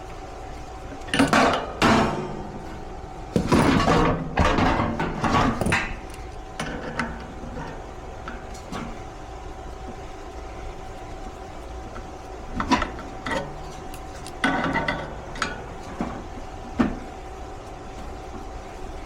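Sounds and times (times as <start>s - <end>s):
faint steady hum: 0.0s - 19.0s
metal clanks and knocks: 3.3s - 7.8s.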